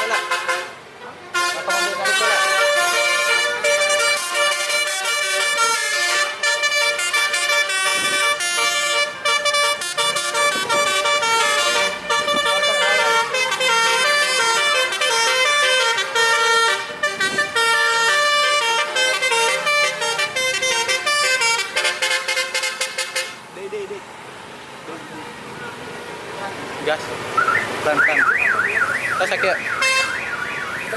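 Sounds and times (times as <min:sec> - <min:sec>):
tuned air horns playing melody: 0:00.0 - 0:23.5, 0:29.8 - 0:30.2.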